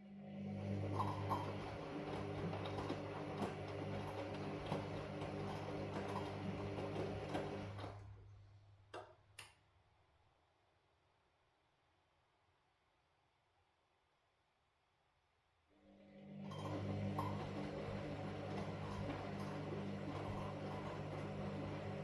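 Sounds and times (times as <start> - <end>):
washing machine drum turning: 16.8 - 22.0.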